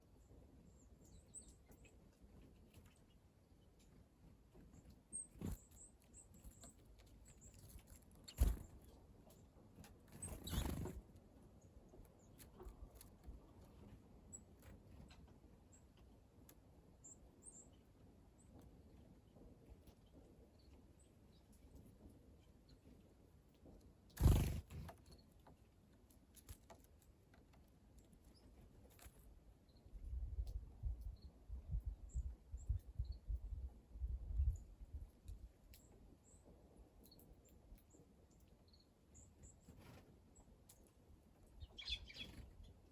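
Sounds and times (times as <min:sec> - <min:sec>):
small birds calling: 0:00.1 - 0:11.0, 0:24.1 - 0:25.3, 0:37.0 - 0:42.9.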